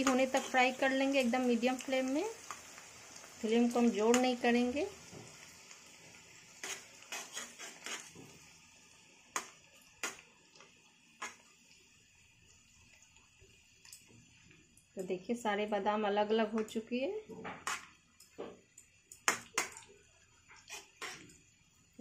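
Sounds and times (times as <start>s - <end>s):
metal spatula scraping pan: 0.0s - 0.7s, 6.6s - 8.2s, 17.6s - 17.9s, 20.5s - 21.3s
food deep-frying in oil: 0.0s - 22.0s.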